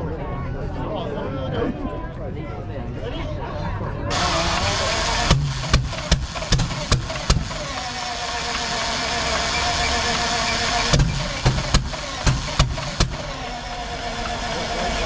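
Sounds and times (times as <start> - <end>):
engine firing in sharp bangs: 4.1 - 15.0.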